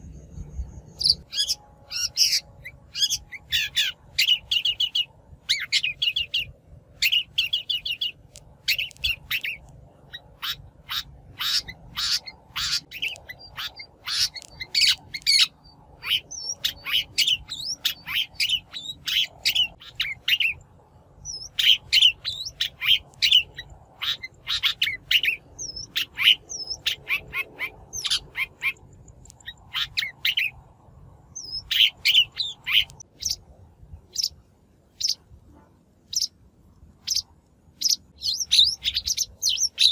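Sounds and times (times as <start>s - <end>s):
thin whistled bird notes: 0.0s - 20.6s
shrike chattering calls: 1.0s - 20.6s, 21.3s - 28.8s.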